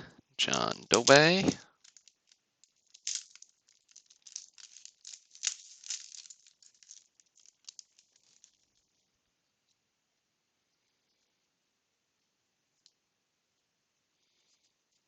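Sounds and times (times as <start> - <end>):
trading cards flicked by hand: 0.5 - 2.1.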